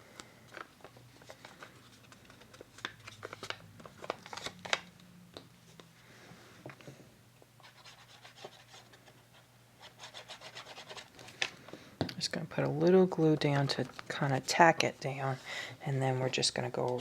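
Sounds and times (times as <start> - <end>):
paper crinkling and rustling: 0.1 - 5.0, 12.9 - 14.8.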